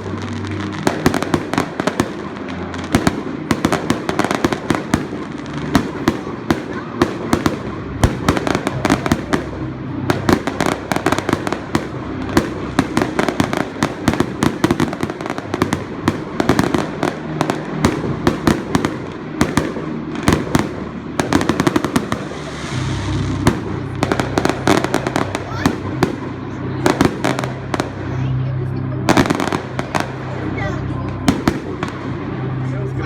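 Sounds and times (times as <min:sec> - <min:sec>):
fireworks hiss: 0:00.0 - 0:26.3
fireworks bangs and crackling: 0:00.0 - 0:33.0.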